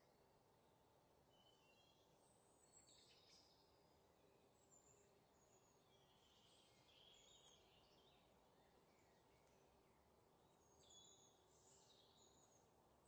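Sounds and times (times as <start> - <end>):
faint high bird chirps: 1.3 - 3.8, 4.6 - 9.8, 10.4 - 12.7.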